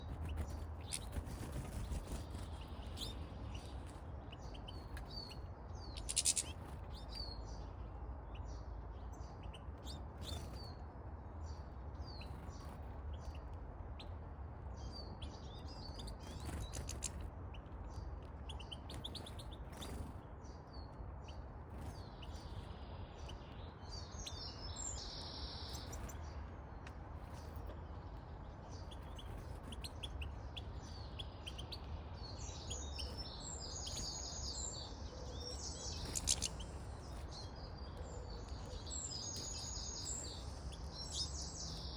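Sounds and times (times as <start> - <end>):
birds chirping and twittering: 0.0 - 41.9.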